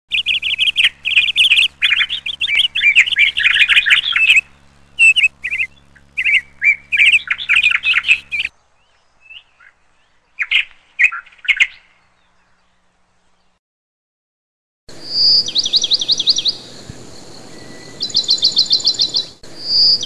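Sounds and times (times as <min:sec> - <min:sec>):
faint low hum: 0:00.1 - 0:10.8
small birds chirping: 0:00.1 - 0:13.6, 0:14.9 - 0:20.0.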